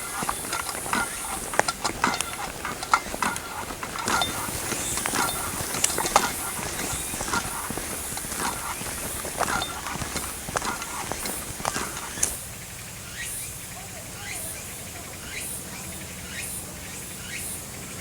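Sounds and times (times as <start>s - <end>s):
knocks and clatter: 0.0s - 12.4s.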